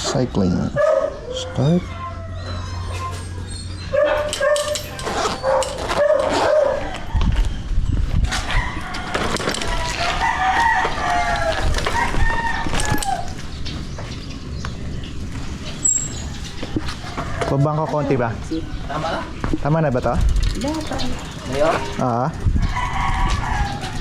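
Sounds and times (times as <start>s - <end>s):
roosters crowing: 0.8s - 19.5s, 21.2s - 24.0s.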